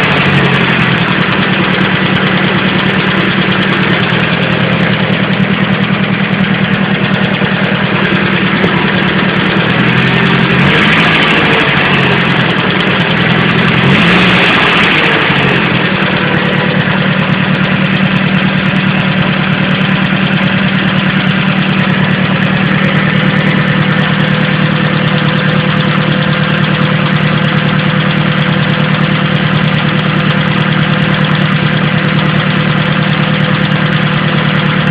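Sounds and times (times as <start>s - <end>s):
vehicle engine idling and revving: 0.0s - 34.9s.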